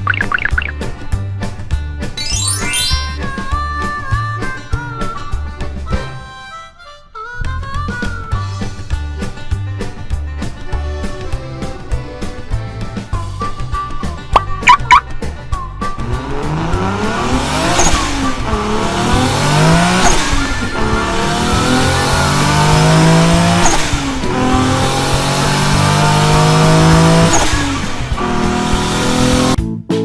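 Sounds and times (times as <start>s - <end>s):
car engine accelerating: 15.9s - 29.6s.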